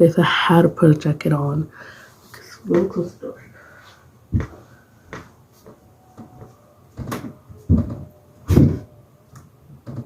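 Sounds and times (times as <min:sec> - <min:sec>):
door closing with knocks and thumps: 0:06.2 - 0:08.9, 0:09.7 - 0:10.0.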